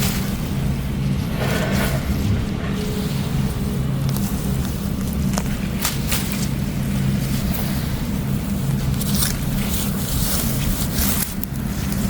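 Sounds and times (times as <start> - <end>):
low rumble: 0.8 - 6.4.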